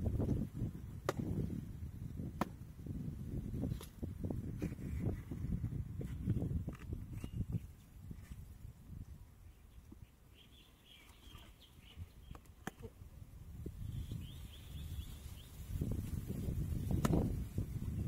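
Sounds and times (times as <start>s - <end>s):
faint bird chirping: 7.1s - 8.1s, 9.0s - 13.0s, 13.8s - 15.8s.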